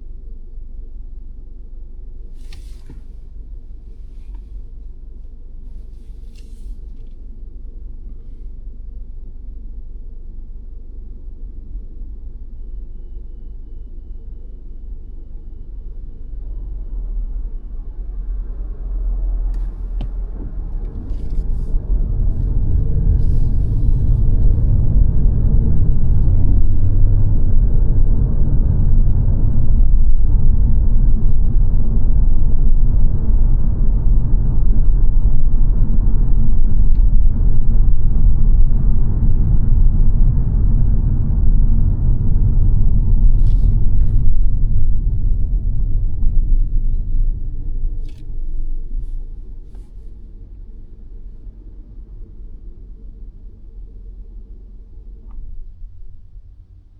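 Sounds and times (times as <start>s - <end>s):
car road and engine noise: 0.0s - 56.9s.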